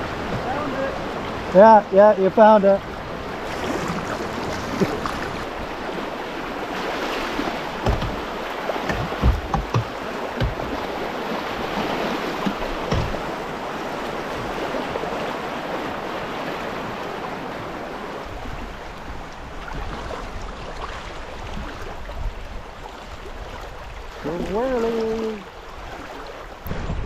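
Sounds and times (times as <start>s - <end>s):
river water rushing: 0.0s - 27.0s
low knocks: 7.8s - 10.9s, 12.4s - 13.4s.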